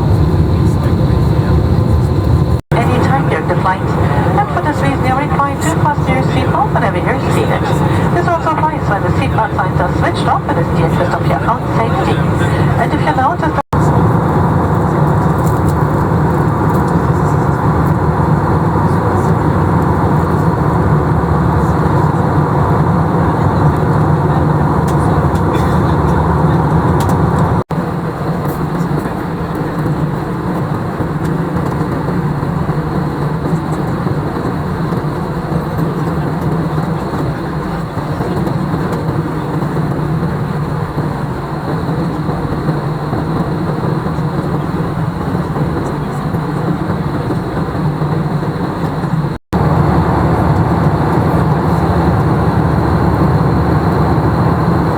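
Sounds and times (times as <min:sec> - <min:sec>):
low hum: 0:00.0 - 0:27.6
jet engine and airflow noise in cabin: 0:00.0 - 0:54.9.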